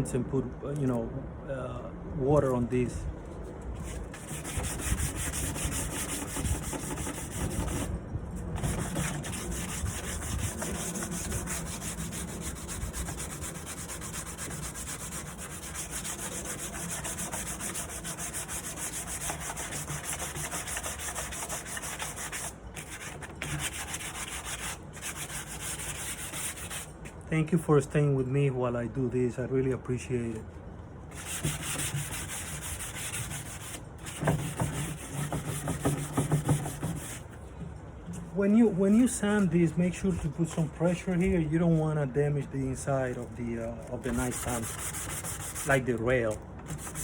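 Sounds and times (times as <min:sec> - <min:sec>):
sandpaper rubbing on wood: 0:03.8 - 0:07.9, 0:08.6 - 0:27.0, 0:31.1 - 0:37.3, 0:43.1 - 0:47.0.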